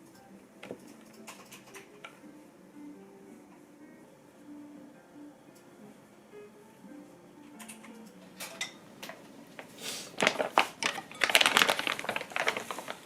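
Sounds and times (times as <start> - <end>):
crinkling: 8.6 - 13.0.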